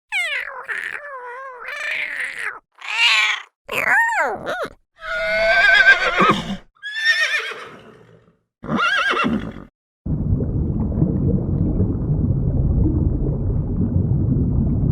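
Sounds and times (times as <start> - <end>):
low rumbling noise: 10.1 - 14.9.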